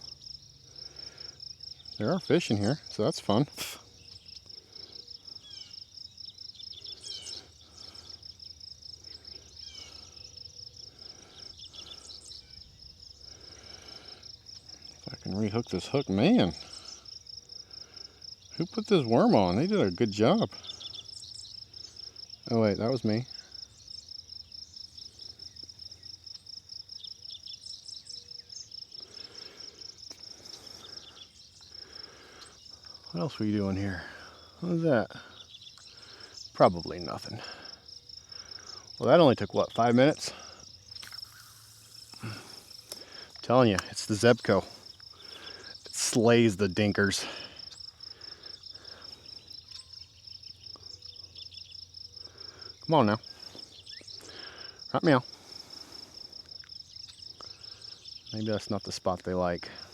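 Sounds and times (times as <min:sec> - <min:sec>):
crickets chirping: 0:00.0 - 0:59.9
insects trilling: 0:00.0 - 0:59.9
scattered other chirps: 0:00.9 - 0:15.0, 0:27.0 - 0:58.8.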